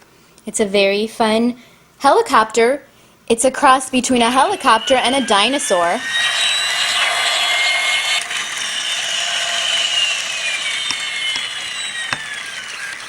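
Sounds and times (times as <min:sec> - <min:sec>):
toy helicopter motor whirring: 0:03.9 - 0:13.0.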